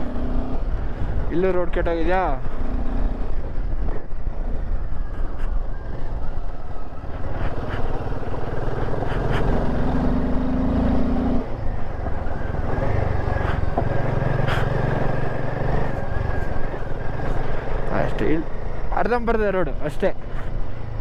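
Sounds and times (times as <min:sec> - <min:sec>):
motorcycle engine running: 0:02.2 - 0:18.9.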